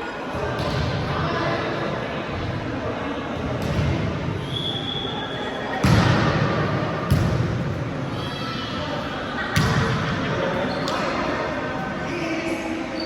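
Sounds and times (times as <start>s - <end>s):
murmur of voices: 0.0s - 13.0s.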